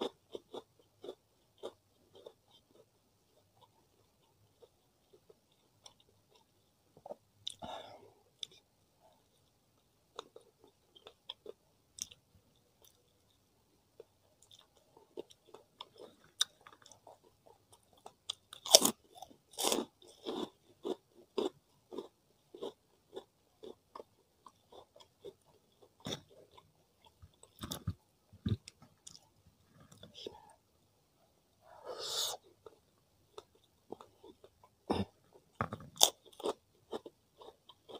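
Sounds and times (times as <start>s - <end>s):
chewing: 0.0s - 7.6s, 32.6s - 37.9s
crunchy bites: 18.0s - 25.1s, 35.6s - 37.9s.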